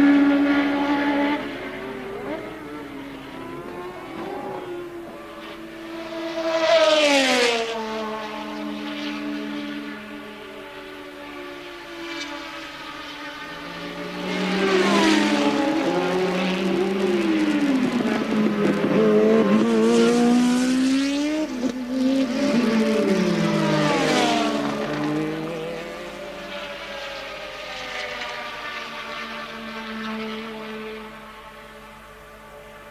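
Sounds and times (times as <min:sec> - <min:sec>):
racing cars passing: 0:00.0 - 0:32.9.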